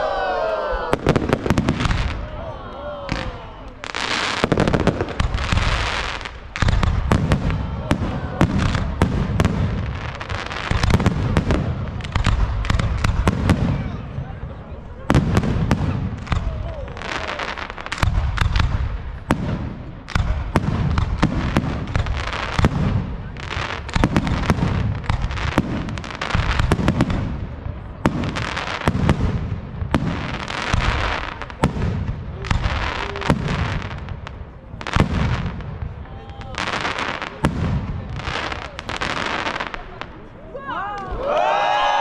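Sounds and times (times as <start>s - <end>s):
firework shells booming: 0.9s - 2.4s, 3.0s - 14.4s, 15.0s - 40.2s
firework crackle and fizz: 3.1s - 14.0s.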